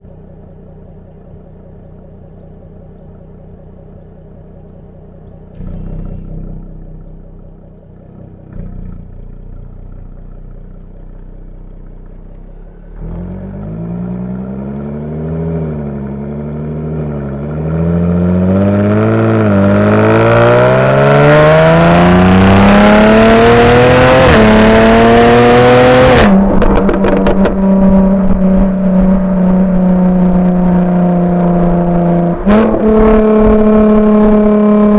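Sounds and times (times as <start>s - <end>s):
exhaust pops and crackles: 0.0s - 13.0s, 26.0s - 30.9s
car engine revving: 0.0s - 34.9s.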